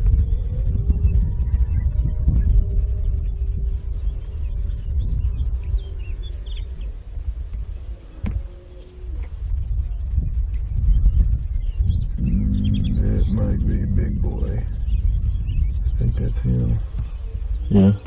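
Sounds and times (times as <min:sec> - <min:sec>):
faint bird chirps: 0:00.0 - 0:07.0, 0:07.7 - 0:18.0
high-pitched insect drone: 0:00.0 - 0:18.0
wind buffeting microphone: 0:00.0 - 0:18.0.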